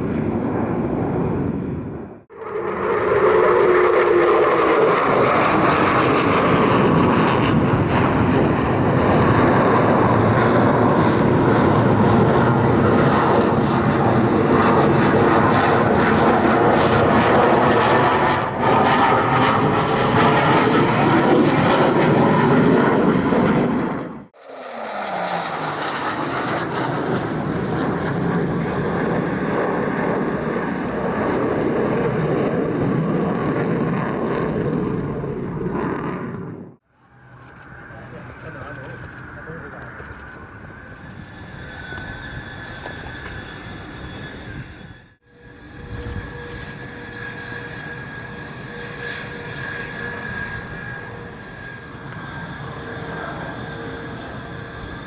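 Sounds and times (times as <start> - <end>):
fighter jet roaring past: 0.0 - 55.0.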